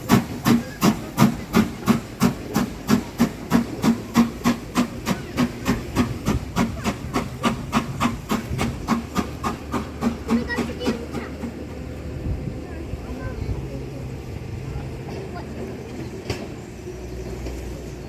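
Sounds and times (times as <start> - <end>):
steam locomotive chuffing: 0.0 - 18.0.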